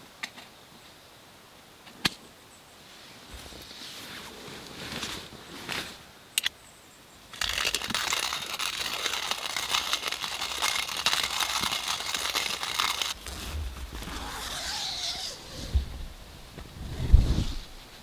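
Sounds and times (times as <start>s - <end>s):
soft rustling: 2.8s - 6.1s
hand coffee grinder grinding beans: 7.3s - 15.0s.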